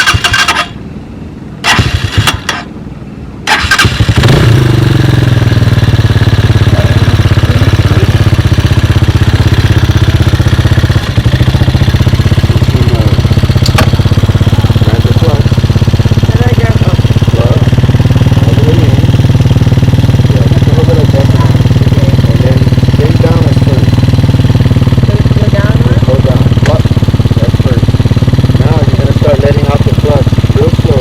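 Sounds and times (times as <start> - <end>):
dirt bike engine starting and idling: 0.0 - 0.8, 1.6 - 2.7, 3.4 - 31.0.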